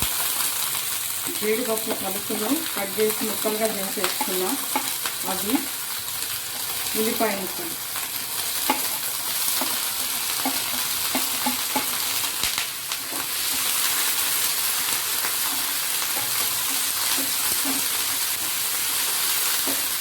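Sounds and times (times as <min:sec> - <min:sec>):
vegetables sizzling in hot oil: 0:00.0 - 0:20.0
spoon scraping against pan: 0:03.1 - 0:05.2, 0:08.3 - 0:12.2, 0:13.0 - 0:20.0.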